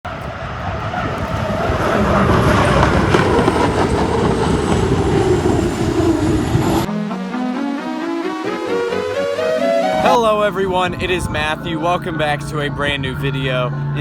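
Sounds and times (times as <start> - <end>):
hydroplane engine roaring: 0.0 - 14.0
high turbine whine: 0.1 - 6.9.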